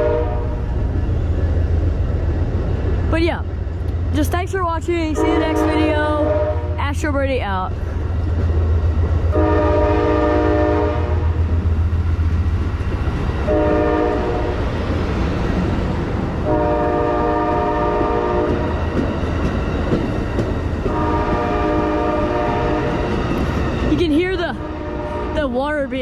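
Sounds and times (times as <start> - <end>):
locomotive air horn blasts: 0.0 - 0.6, 5.2 - 6.8, 9.3 - 11.4, 13.5 - 14.6, 16.4 - 18.7, 20.9 - 23.0, 24.6 - 25.5
train rumbling: 0.0 - 26.0.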